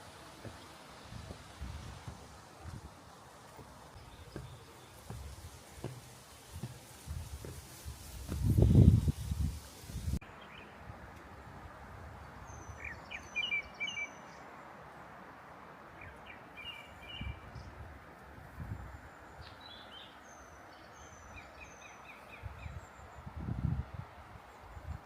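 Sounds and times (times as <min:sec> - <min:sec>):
outdoor hiss: 0:00.0 - 0:17.0
songbirds chirping: 0:00.0 - 0:25.0
dull low thuds: 0:00.4 - 0:10.2.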